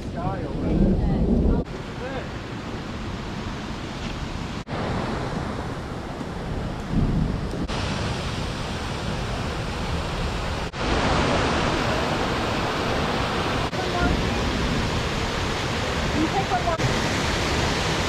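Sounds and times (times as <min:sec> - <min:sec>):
waterfall rushing: 0:07.6 - 0:18.0.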